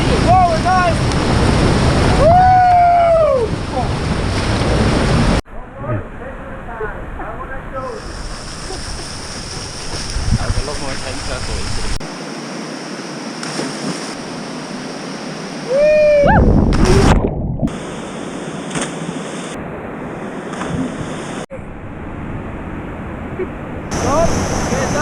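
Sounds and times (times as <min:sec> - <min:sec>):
person yelling: 0:15.7 - 0:17.1.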